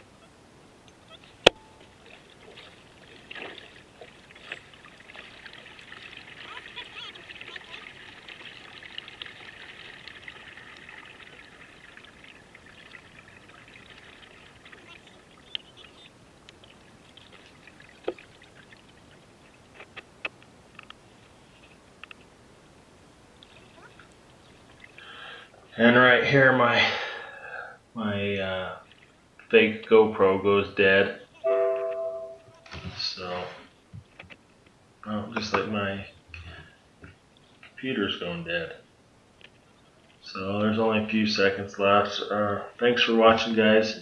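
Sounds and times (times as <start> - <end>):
paddle splashes and drips: 1.4 - 20.0, 23.4 - 25.4, 28.8 - 29.2.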